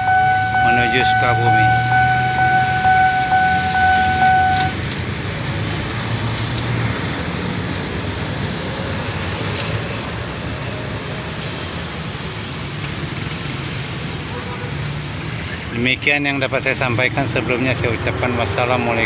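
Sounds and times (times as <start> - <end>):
high-pitched tone: 0.0 - 4.8
low engine drone: 0.0 - 6.5
train rolling rumble: 0.0 - 18.8.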